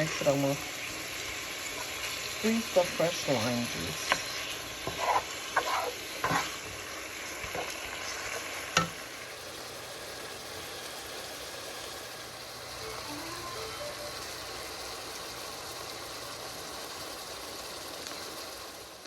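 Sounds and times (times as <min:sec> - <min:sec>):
meat sizzling in a pot: 0:00.0 - 0:19.0
utensil scraping and knocking: 0:04.8 - 0:06.5.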